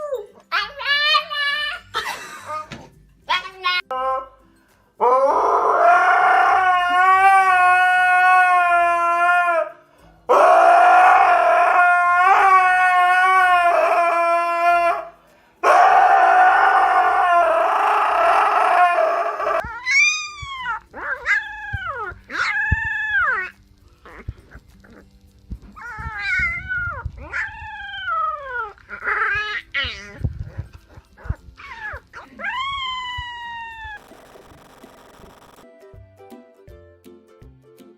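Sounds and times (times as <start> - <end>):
dog howling: 5.0 - 25.1, 25.8 - 30.2, 31.2 - 34.0.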